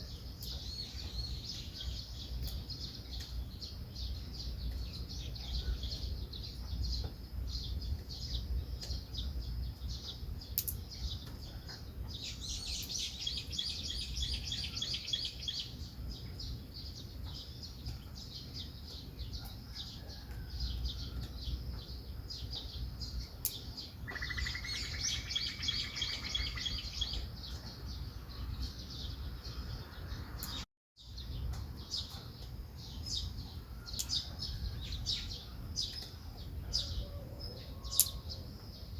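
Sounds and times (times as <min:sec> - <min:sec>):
songbirds chirping: 0:00.0 - 0:38.9
bird whistled trill: 0:24.1 - 0:27.2.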